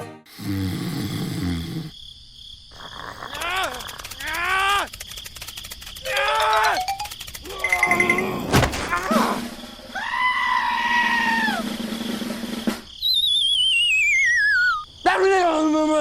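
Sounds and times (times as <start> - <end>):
rapid high beeps: 6.6 - 8.2
warbling whistle falling in pitch: 13.0 - 14.8.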